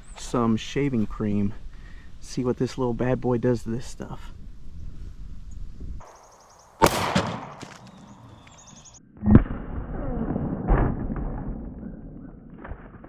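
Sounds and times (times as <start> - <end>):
pistol shots: 6.1 - 8.8.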